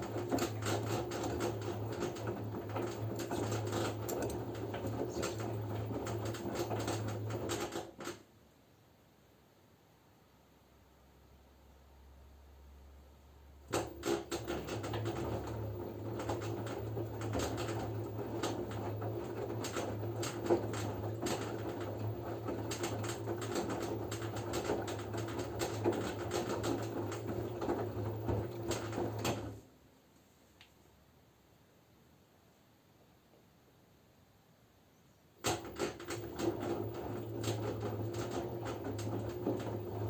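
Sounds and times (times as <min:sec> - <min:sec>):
washing machine drum tumbling laundry: 0:00.0 - 0:08.2, 0:13.6 - 0:29.6, 0:35.4 - 0:40.0.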